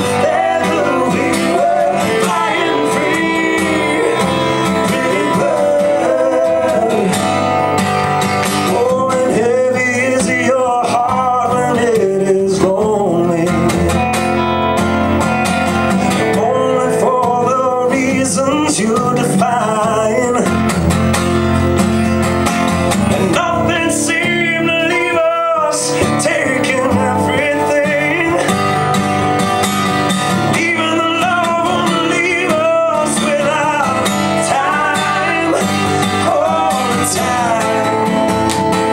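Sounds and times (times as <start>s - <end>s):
person singing: 0.0s - 14.1s, 23.1s - 28.9s, 30.4s - 38.9s
guitar playing: 0.0s - 38.9s.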